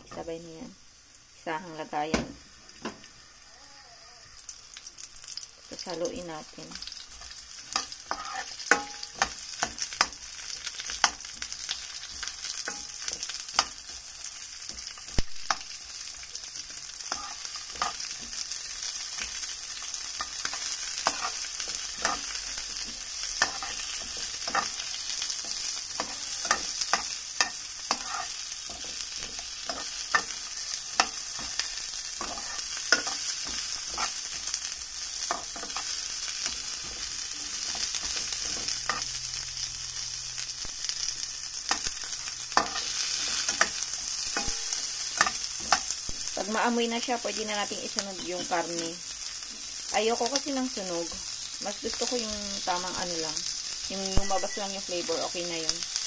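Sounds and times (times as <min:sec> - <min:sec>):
food sizzling in oil: 0:00.0 - 0:56.0
spatula scraping a pan: 0:06.9 - 0:15.6, 0:16.3 - 0:39.4, 0:41.6 - 0:46.1.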